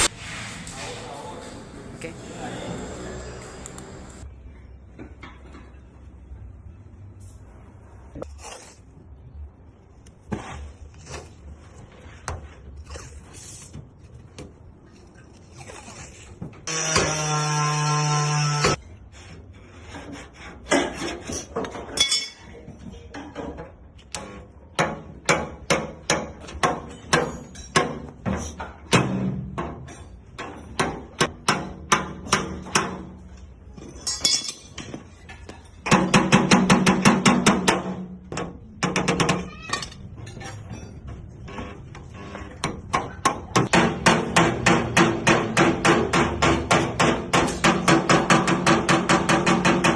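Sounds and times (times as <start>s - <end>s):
hammer striking sheet metal: 43.6s - 49.9s.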